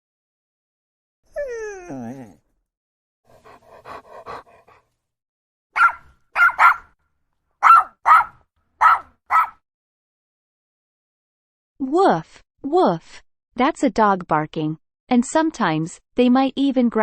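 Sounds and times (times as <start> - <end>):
dog whining: 1.3 - 2.4, 5.8 - 6.9, 7.6 - 9.5
dog barking: 5.8 - 7.0, 7.6 - 9.6
dog yipping: 5.8 - 7.0, 7.6 - 9.6.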